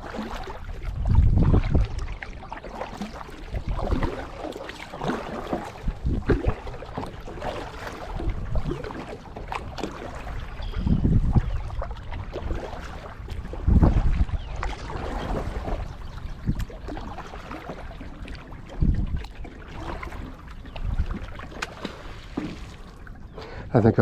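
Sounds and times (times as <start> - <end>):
water splashing around kayak: 0.0 - 23.7
wind gusts on microphone: 0.5 - 2.2, 5.6 - 6.8, 10.2 - 16.7, 18.7 - 19.3.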